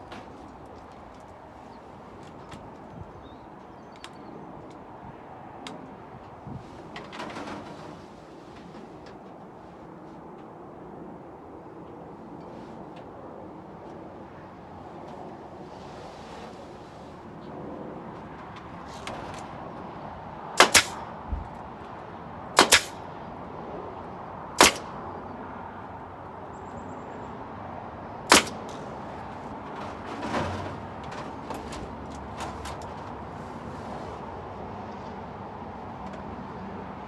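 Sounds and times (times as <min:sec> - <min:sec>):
outdoor background hiss: 0:00.0 - 0:37.0
impacts on wood: 0:20.6 - 0:21.6, 0:22.6 - 0:23.0, 0:24.6 - 0:24.9, 0:28.3 - 0:33.2.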